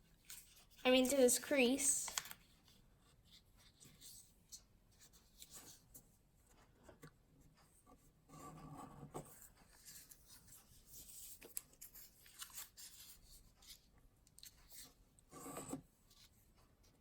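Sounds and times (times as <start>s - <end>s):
paper being folded: 9.6s - 15.0s.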